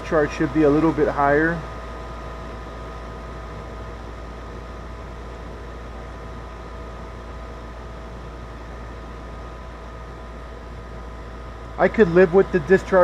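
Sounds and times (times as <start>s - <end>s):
condensing unit low hum: 0.0s - 13.0s.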